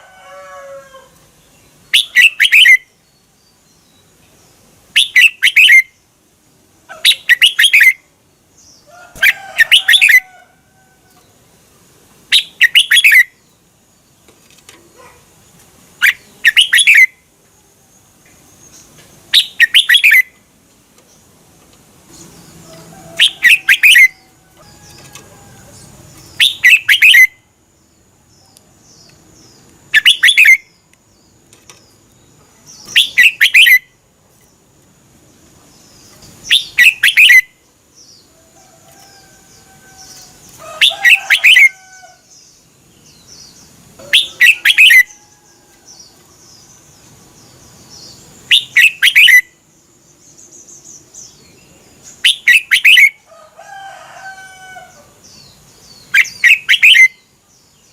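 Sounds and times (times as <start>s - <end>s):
faint bird chirps: 43.0s - 53.2s, 54.9s - 57.9s.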